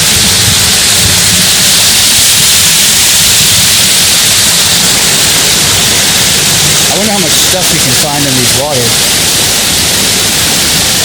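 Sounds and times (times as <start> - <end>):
low rumble: 0.0 - 11.0
waterfall rushing: 0.0 - 11.0.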